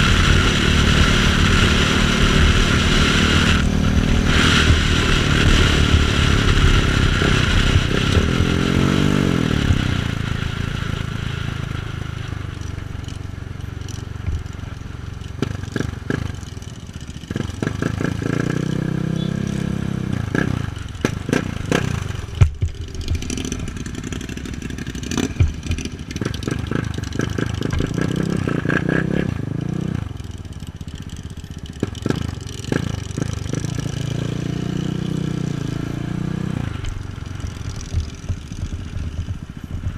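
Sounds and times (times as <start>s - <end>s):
wind rush on microphone: 0.0s - 11.2s
motorcycle engine revving: 0.0s - 39.9s.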